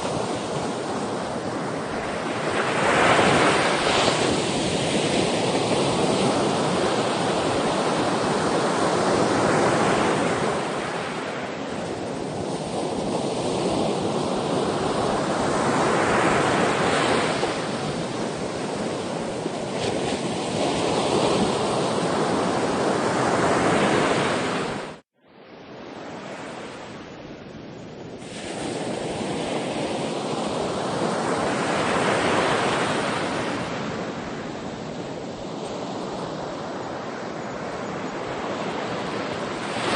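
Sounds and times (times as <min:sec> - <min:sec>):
sea waves breaking ashore: 0:00.0 - 0:25.0, 0:28.1 - 0:39.9.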